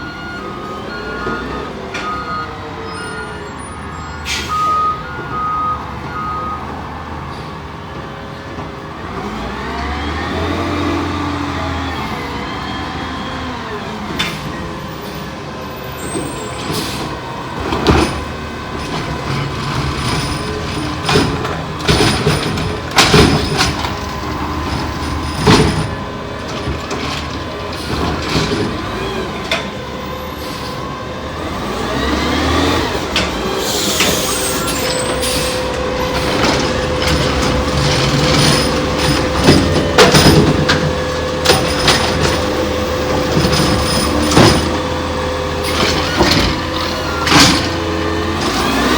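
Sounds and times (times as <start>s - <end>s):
refuse truck engine revving: 9.0s - 48.9s
sharp knocks and bangs: 20.0s - 28.8s, 35.1s - 44.9s.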